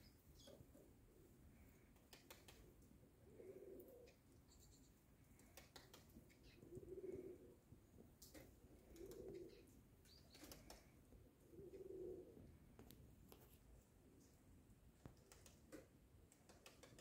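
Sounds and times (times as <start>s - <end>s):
low cooing call: 3.2s - 4.2s, 6.4s - 7.6s, 8.8s - 9.7s, 11.4s - 12.5s
finches chirping and ticking: 4.4s - 5.0s.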